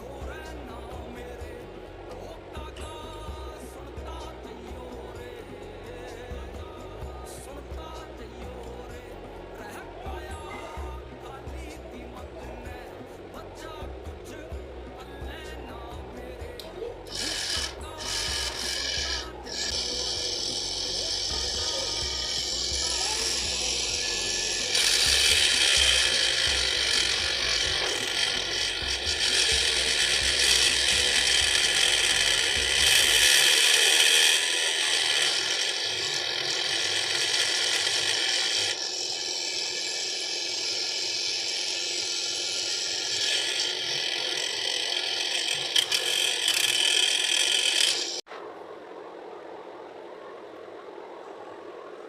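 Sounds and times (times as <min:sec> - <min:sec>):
mini grinder grinding: 0:15.8 - 0:48.2.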